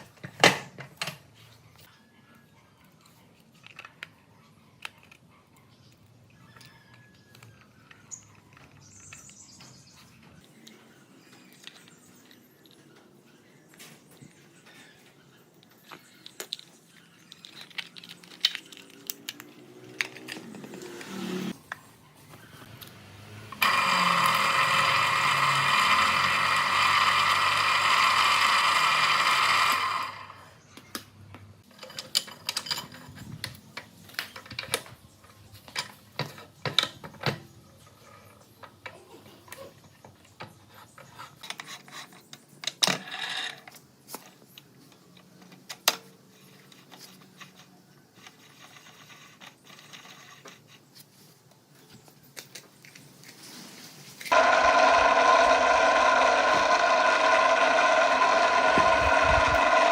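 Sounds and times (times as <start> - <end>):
motor running: 23.5 - 30.5, 54.3 - 59.9
clicks and knocks of tools: 30.8 - 37.5.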